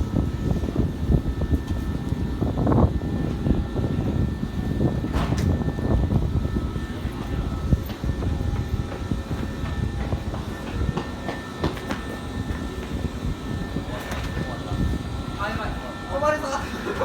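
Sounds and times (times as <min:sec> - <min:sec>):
electric train rumbling: 0:00.0 - 0:17.0
faint steady whine: 0:00.0 - 0:17.0
train knocks: 0:06.8 - 0:13.0.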